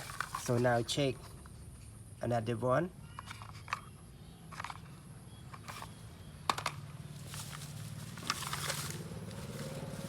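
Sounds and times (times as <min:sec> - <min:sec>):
grass rustling: 0:07.0 - 0:10.0.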